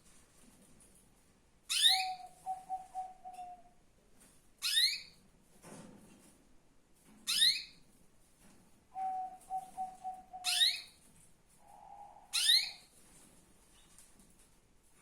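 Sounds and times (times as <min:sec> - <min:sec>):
canary whistled tone: 0:09.0 - 0:10.9, 0:11.7 - 0:12.8
canary rising chirps: 0:09.6 - 0:10.9, 0:11.6 - 0:12.9.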